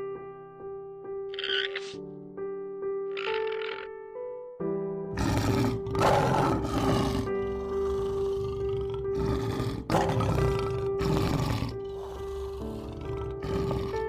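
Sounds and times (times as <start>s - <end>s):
background music: 0.0s - 14.0s
rough animal calls: 1.3s - 2.0s, 3.1s - 3.9s, 5.2s - 14.0s.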